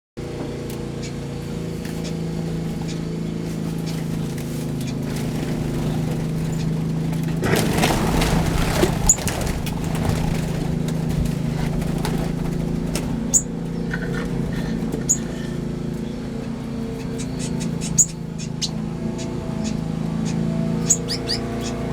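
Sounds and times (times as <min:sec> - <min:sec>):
low mechanical hum: 0:00.2 - 0:21.9
small birds chirping: 0:00.3 - 0:21.9.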